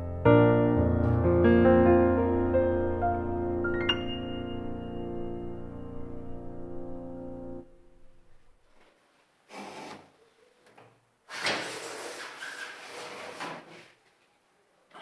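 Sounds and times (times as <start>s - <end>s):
piano music: 0.0s - 8.6s
sliding door scraping on track: 9.5s - 10.0s, 11.3s - 13.9s.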